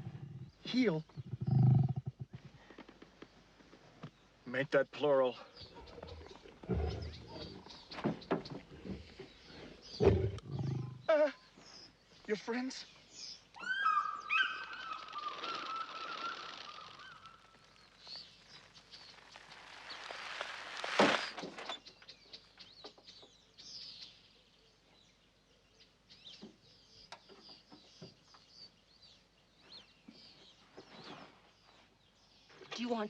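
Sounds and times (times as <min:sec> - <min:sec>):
faint high bird chirps: 0:12.9 - 0:20.2.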